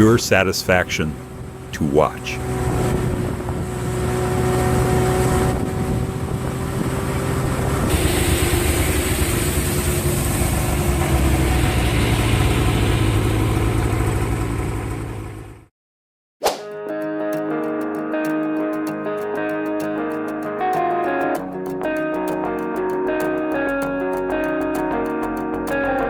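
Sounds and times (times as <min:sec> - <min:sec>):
truck engine running: 0:00.0 - 0:15.7
loud rushing noise: 0:07.8 - 0:13.8.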